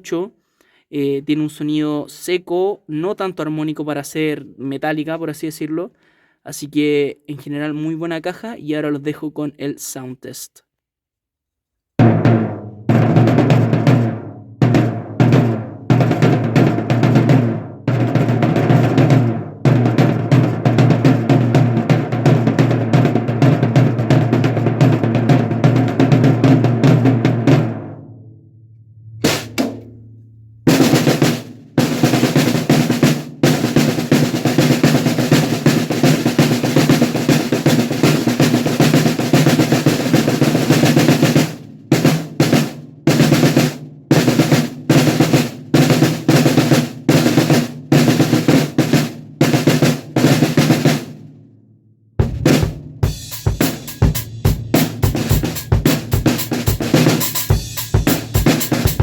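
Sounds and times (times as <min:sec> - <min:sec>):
snare drum rolls and strokes: 0:12.0 - 0:28.0, 0:29.2 - 0:30.0, 0:30.7 - 0:51.2, 0:52.2 - 0:59.0.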